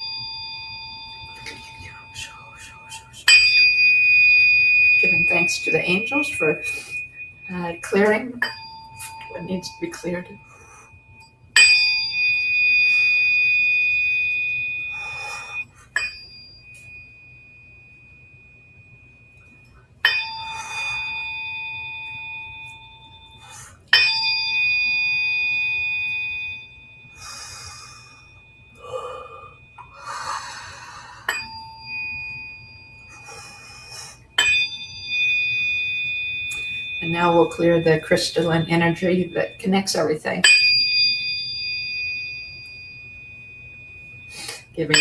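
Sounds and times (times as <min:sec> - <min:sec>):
tuning fork ringing: 0:00.0 - 0:45.0
soft breathy noises: 0:27.2 - 0:31.5, 0:33.1 - 0:34.4.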